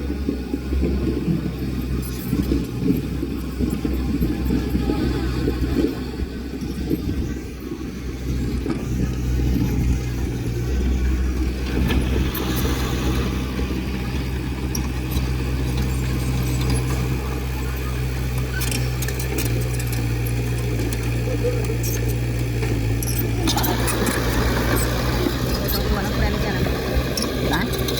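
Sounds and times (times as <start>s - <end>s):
diesel engine running: 0.0s - 27.9s.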